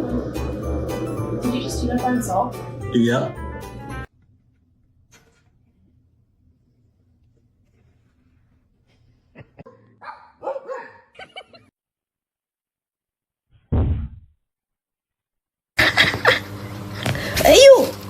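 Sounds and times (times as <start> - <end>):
dog yipping and barking: 9.7 - 11.2.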